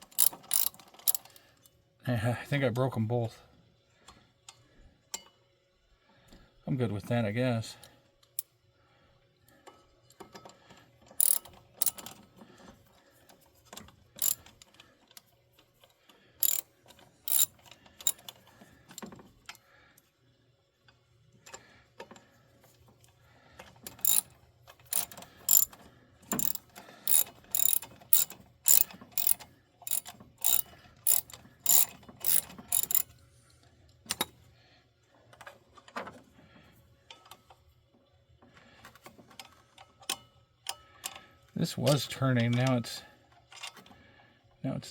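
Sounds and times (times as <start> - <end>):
hand tools clicking on metal: 0.0 - 1.3, 11.2 - 12.2, 14.2 - 14.5, 16.4 - 16.6, 17.3 - 18.3, 23.8 - 33.1, 34.1 - 34.3.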